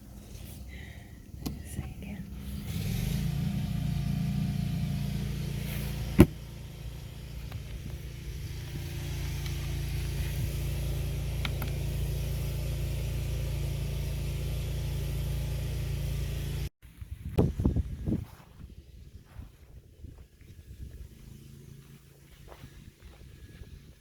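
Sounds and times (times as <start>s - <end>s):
motor humming: 0.0s - 16.7s.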